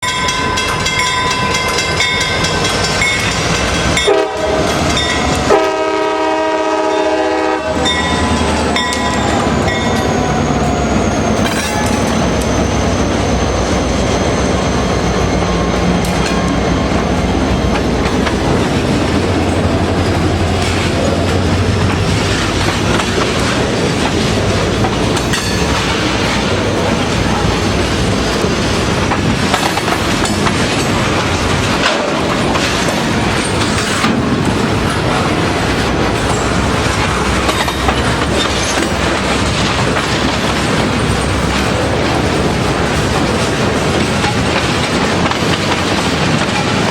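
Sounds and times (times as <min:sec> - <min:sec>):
train rumble and wheel clatter: 0:00.0 - 0:46.9
train horn blasts: 0:04.0 - 0:09.5.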